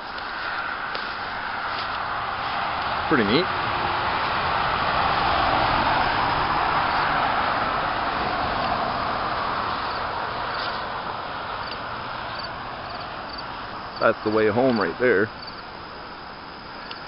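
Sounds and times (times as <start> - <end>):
highway traffic passing: 0.0 - 17.0.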